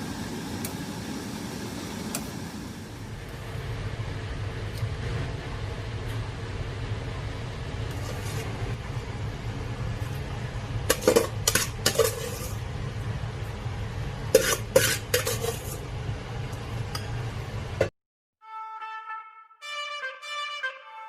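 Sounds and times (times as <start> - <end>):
utensil scraping a bowl: 7.9 - 8.6, 10.9 - 12.6, 14.3 - 15.8.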